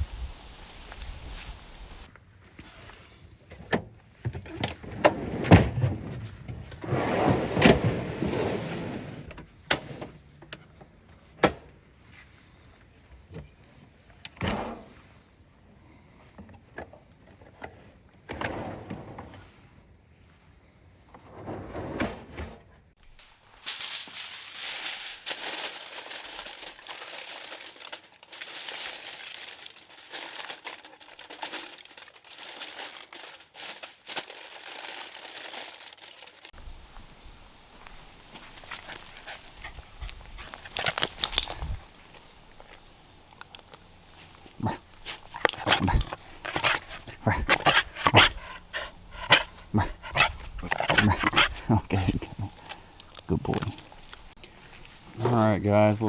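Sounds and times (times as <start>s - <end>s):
plastic packaging crinkling: 23.5s - 36.6s
camp gear knocking and rustling: 36.5s - 55.4s.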